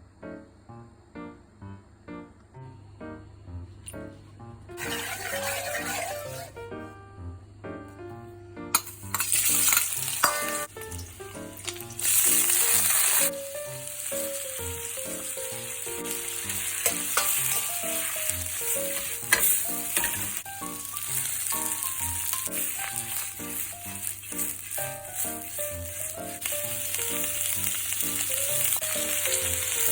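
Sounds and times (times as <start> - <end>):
light background music: 0.2 - 29.9
vegetables sizzling in a pan: 4.8 - 6.6, 8.8 - 29.9.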